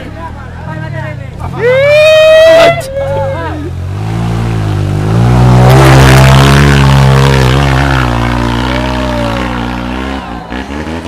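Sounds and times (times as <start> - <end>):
motorcycle engine revving: 3.3 - 11.0.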